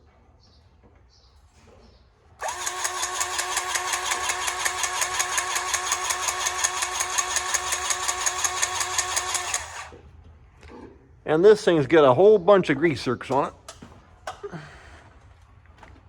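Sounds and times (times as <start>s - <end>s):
grease gun pump pulsing: 2.4s - 10.0s.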